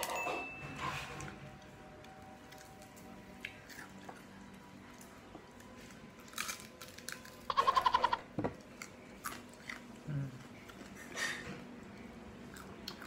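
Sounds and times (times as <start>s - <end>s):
person chewing: 2.4s - 4.6s, 5.6s - 7.5s, 8.7s - 11.4s, 12.4s - 13.0s.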